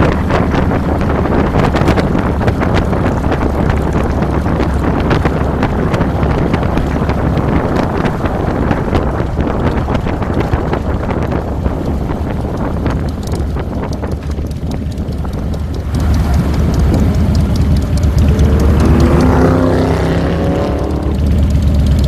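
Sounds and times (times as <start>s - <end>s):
wind buffeting microphone: 0.0s - 17.3s
motorcycle engine rumble: 0.0s - 22.0s.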